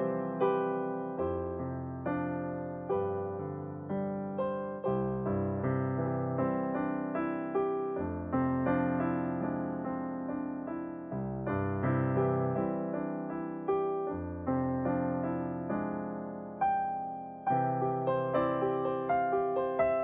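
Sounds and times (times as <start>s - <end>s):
slow gentle piano piece: 0.0s - 20.0s.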